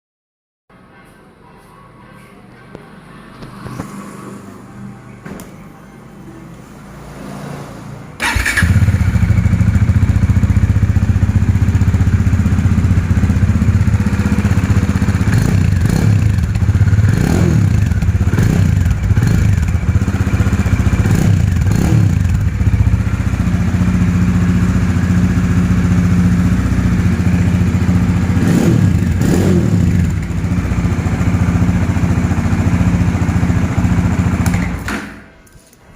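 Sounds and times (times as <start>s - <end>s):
loud motorcycle engine idling: 8.2s - 34.9s.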